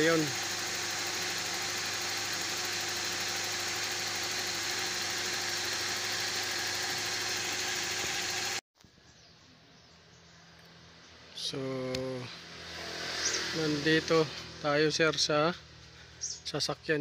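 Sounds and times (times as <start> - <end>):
car engine idling: 0.0 - 8.6.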